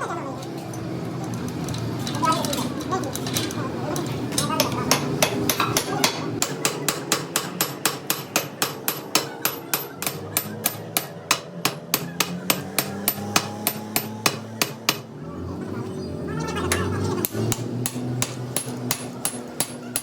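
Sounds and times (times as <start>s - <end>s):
hammer striking rapidly: 4.6s - 15.1s.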